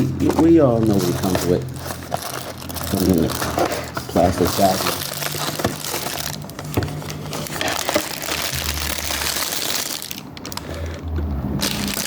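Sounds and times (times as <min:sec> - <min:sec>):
plastic packaging crinkling: 0:00.2 - 0:12.0.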